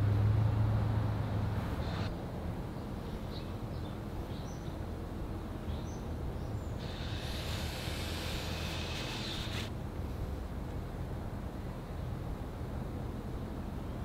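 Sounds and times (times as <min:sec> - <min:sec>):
low outdoor rumble: 0:00.0 - 0:14.0
small birds chirping: 0:03.0 - 0:04.8.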